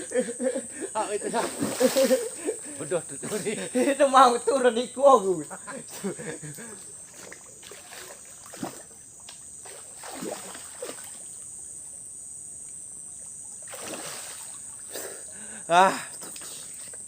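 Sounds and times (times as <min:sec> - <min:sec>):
high insect drone: 0:00.0 - 0:17.0
river water trickling: 0:00.0 - 0:17.0
water splash: 0:01.3 - 0:02.4, 0:07.1 - 0:09.0, 0:09.6 - 0:11.4, 0:13.6 - 0:14.6.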